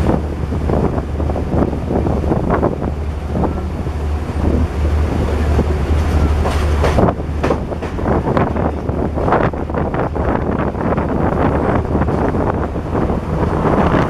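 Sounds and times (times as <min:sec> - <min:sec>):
wind on microphone: 0:00.0 - 0:14.0
train wheels clattering: 0:03.3 - 0:14.0.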